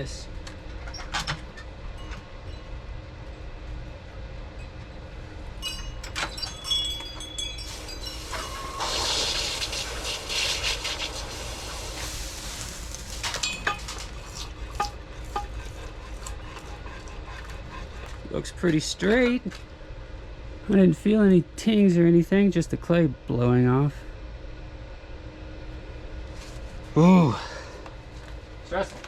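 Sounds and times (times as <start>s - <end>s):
metal clinks: 5.6s - 8.9s
hot blade hissing in water: 7.5s - 15.5s.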